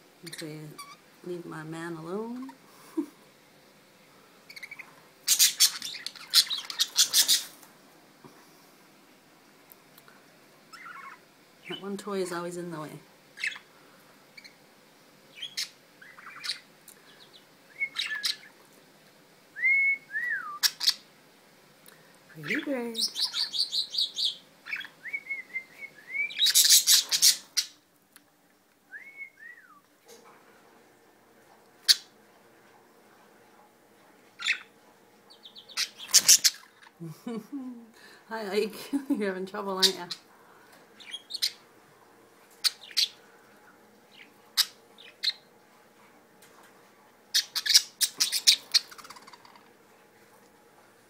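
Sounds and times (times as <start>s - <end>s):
budgerigars chirping and whistling: 4.5s - 7.5s, 10.7s - 11.8s, 13.4s - 13.7s, 15.3s - 18.6s, 20.6s - 21.0s, 22.4s - 27.8s, 34.4s - 34.7s, 35.3s - 36.9s, 41.0s - 41.6s, 42.6s - 43.2s, 44.1s - 45.5s, 47.3s - 49.6s.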